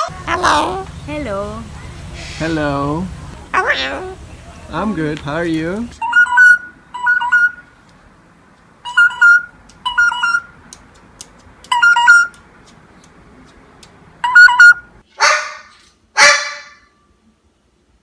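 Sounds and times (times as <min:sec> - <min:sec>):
parrot squawks: 0:00.0 - 0:00.9, 0:03.5 - 0:04.2, 0:14.2 - 0:16.9
parrot whistling: 0:06.0 - 0:07.6, 0:08.8 - 0:10.5.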